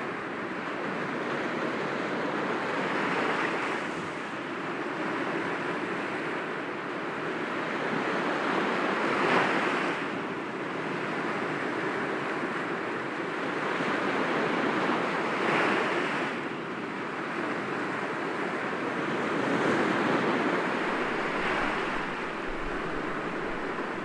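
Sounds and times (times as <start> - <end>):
sea waves breaking against rocks: 19.4 - 24.0.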